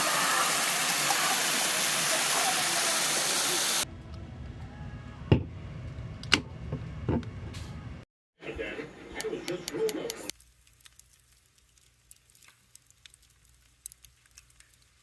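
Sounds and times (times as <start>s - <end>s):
low rumble: 3.8s - 8.0s.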